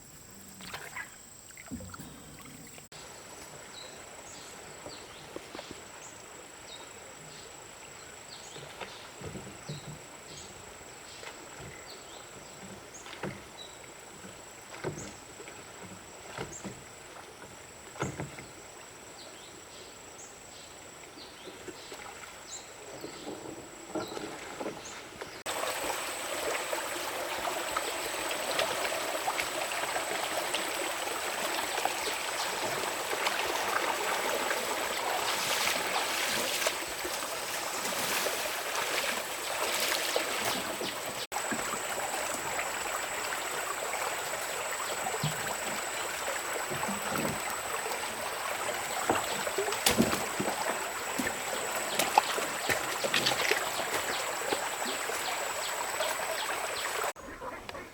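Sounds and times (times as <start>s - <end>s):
running water: 25.4s - 57.6s.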